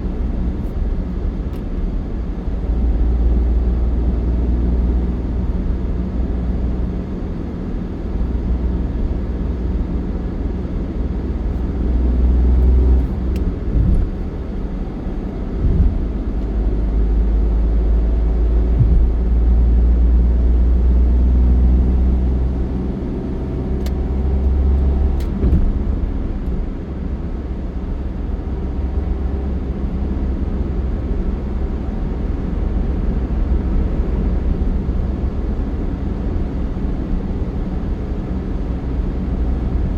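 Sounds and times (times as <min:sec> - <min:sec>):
vehicle rumble with road noise: 0:00.0 - 0:39.9
thumps from road bumps: 0:12.6 - 0:16.6, 0:18.6 - 0:19.6, 0:24.8 - 0:26.8.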